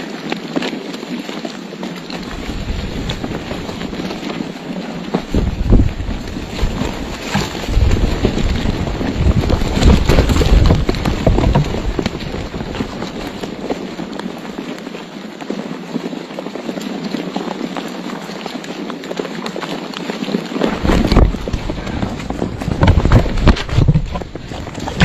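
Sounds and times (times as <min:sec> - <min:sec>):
wind buffeting microphone: 0:02.1 - 0:14.6, 0:20.2 - 0:25.0.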